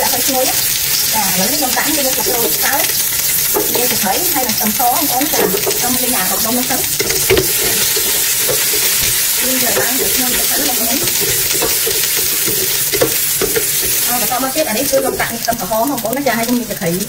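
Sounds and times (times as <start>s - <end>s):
aromatics sizzling in hot oil: 0.0s - 17.0s
wooden spatula scraping a pot: 0.3s - 16.2s.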